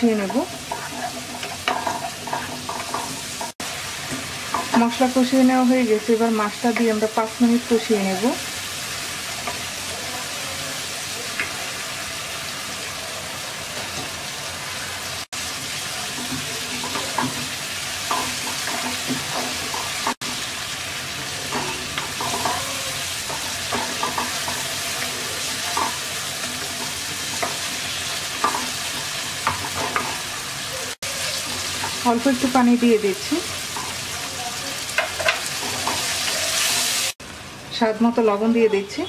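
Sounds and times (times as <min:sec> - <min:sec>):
fish frying sizzle: 0:00.0 - 0:37.9
wooden spatula scraping a pan: 0:00.4 - 0:03.6.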